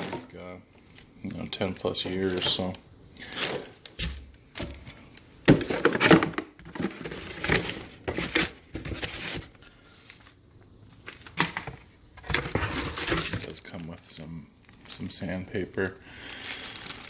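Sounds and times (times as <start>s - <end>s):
packaging rustling: 11.0s - 17.0s.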